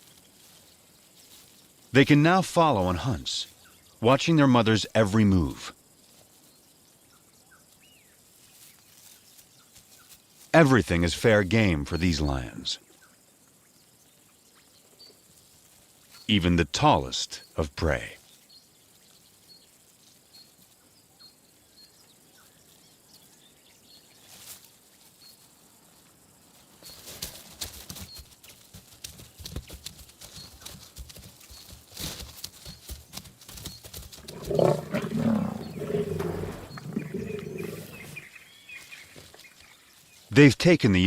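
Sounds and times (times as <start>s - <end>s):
faint regular chirps: 33.6s - 40.5s
lions growling and snarling: 34.2s - 38.4s.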